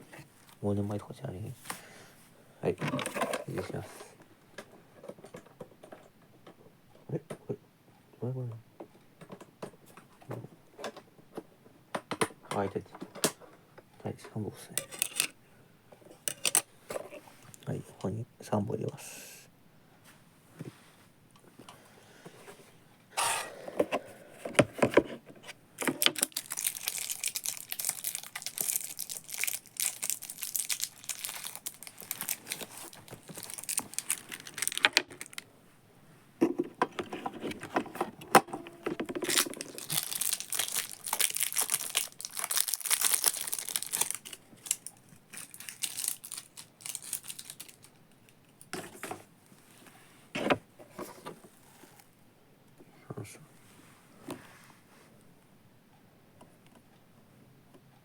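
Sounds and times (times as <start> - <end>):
plastic packaging crinkling: 25.8 - 35.5, 38.8 - 48.0
plastic clicks and knocks: 36.4 - 39.7.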